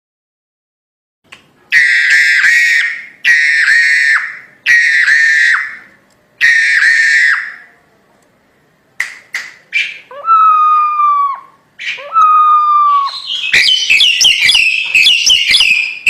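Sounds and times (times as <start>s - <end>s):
myna harsh whistle calls: 1.7s - 7.7s, 9.7s - 16.0s.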